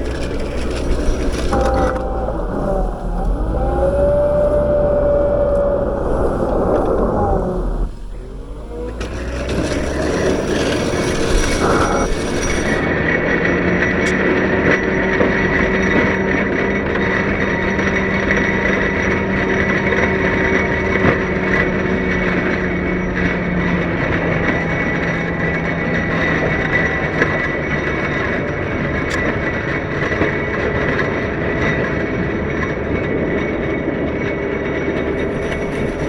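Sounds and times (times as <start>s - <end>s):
snow pusher scraping pavement: 0.0s - 12.9s, 35.0s - 36.0s
loader diesel engine whining: 0.0s - 36.0s.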